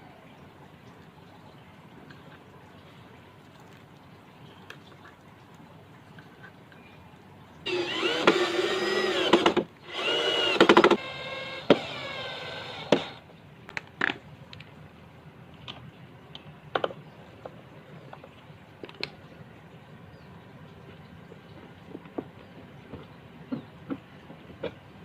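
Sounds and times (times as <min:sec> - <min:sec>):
electric drill running: 0:07.7 - 0:13.2.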